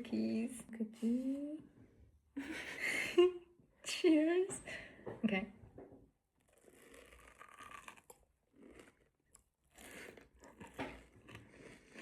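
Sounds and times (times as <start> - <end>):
cookie biting and chewing: 6.4 - 12.0.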